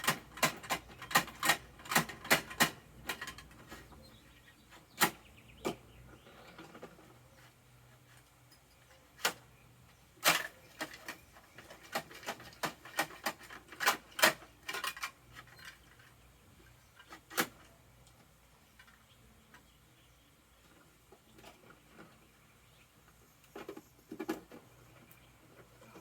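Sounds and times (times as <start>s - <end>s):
plastic toy truck clicks and knocks: 0.0s - 3.9s, 10.2s - 16.2s, 17.0s - 18.2s, 23.5s - 24.7s.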